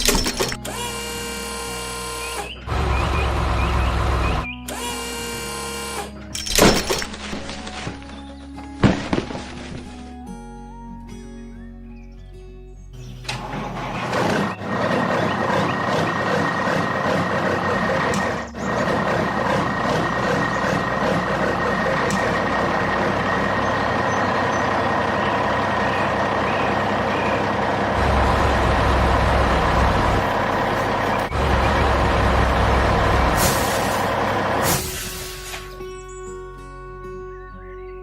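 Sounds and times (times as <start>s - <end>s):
construction machinery engine rumble: 2.3s - 4.6s, 13.2s - 35.9s.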